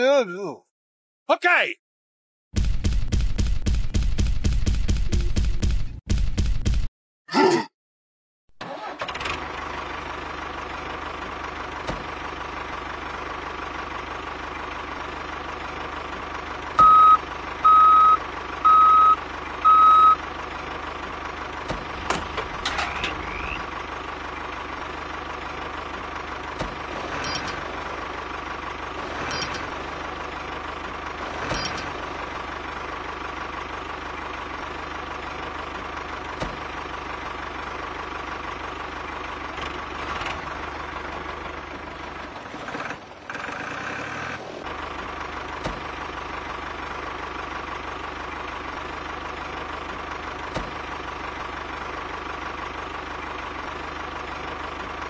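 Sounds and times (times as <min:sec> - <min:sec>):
loud reversing beeps: 0:16.8 - 0:20.2.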